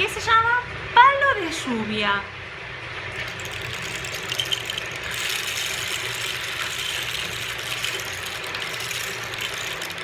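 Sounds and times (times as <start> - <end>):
rain stick pebbles trickling: 3.1 - 10.0.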